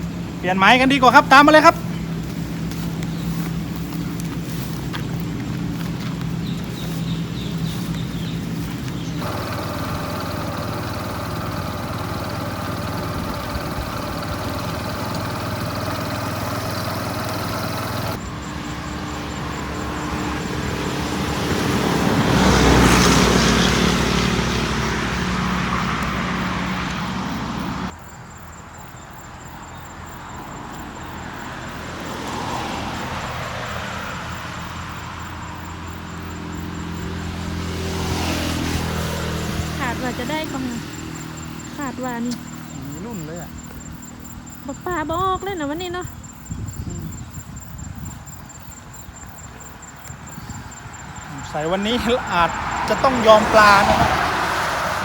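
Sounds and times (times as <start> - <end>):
vehicle engine running: 0.0 - 27.9, 34.3 - 46.5, 51.1 - 55.0
road and wind noise: 0.0 - 55.0.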